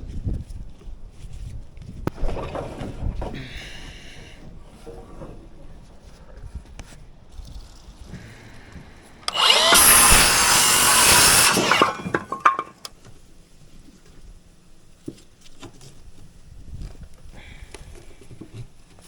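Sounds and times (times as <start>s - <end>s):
power tool cutting: 9.3s - 12.9s.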